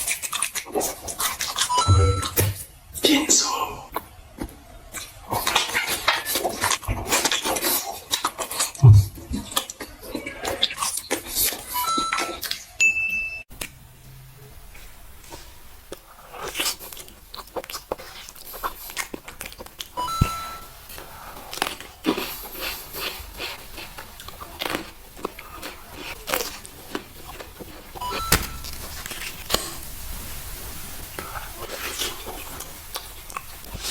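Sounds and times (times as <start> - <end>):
short beep: 1.7 - 2.6, 11.8 - 13.4, 20.0 - 20.6, 28.0 - 28.7
crunching of crisp food: 15.3 - 20.0, 20.9 - 29.9.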